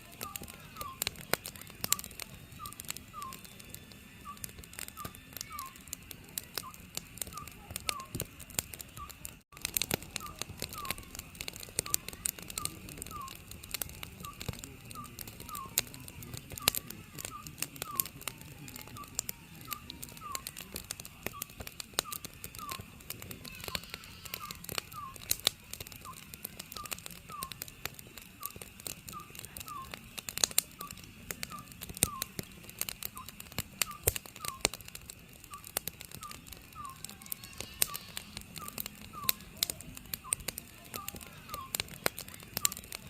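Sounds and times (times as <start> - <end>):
wood fire crackling and popping: 0.0 - 43.0
owl calling: 0.2 - 1.2, 1.8 - 3.5, 4.2 - 5.8, 6.5 - 8.2, 10.2 - 11.2, 11.8 - 13.5, 19.0 - 25.3, 26.0 - 27.6, 28.4 - 30.0, 30.8 - 32.4, 33.2 - 34.8, 35.5 - 39.5, 41.0 - 41.8.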